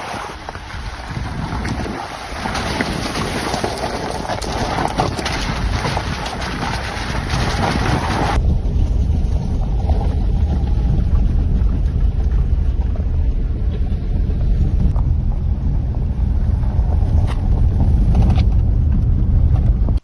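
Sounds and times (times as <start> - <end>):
rushing water: 0.0 - 8.4
wind buffeting microphone: 0.0 - 20.0
low steady rumble: 0.3 - 20.0.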